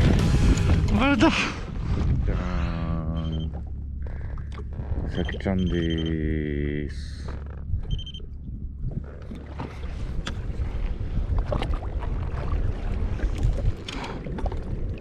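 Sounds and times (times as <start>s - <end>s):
wind buffeting microphone: 0.0s - 5.3s, 7.6s - 15.0s
low rumble: 0.0s - 15.0s
water slapping against hull: 6.9s - 15.0s.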